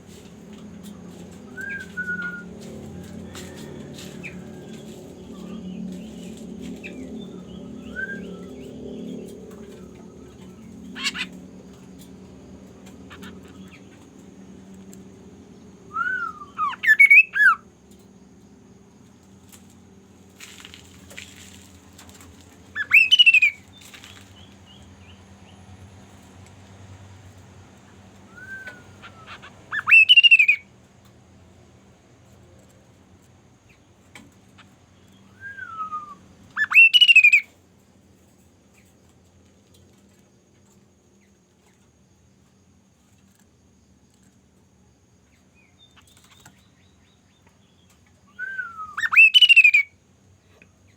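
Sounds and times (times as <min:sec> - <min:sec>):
steady low hum: 0:00.0 - 0:36.6
pet bird squawking: 0:11.0 - 0:11.3, 0:28.9 - 0:30.6
bird soft falling whistle: 0:48.3 - 0:49.6.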